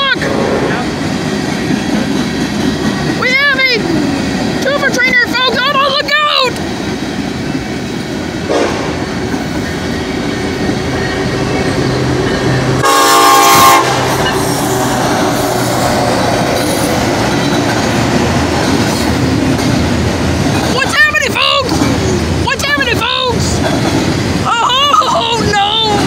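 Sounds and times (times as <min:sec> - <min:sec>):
freight train wheels on rails: 0:00.0 - 0:26.0
locomotive horn blast: 0:08.5 - 0:09.0, 0:12.7 - 0:15.1.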